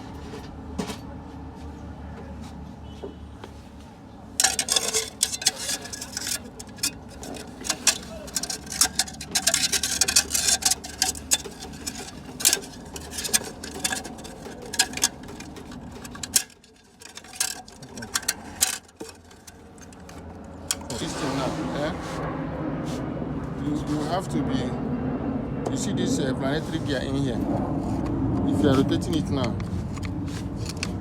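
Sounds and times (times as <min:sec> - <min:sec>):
metal parts clinking and knocking: 0:04.4 - 0:21.2, 0:29.1 - 0:31.0.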